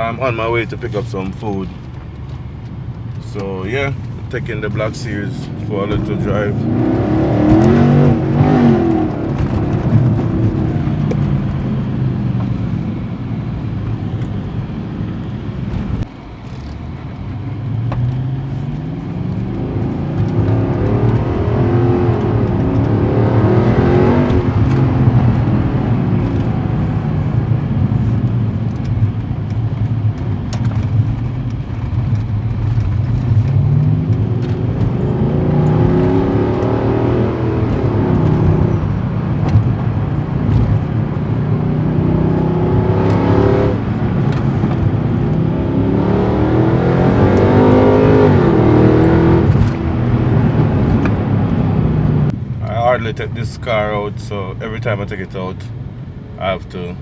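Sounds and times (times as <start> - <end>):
car engine revving through gears: 0.0 - 57.0.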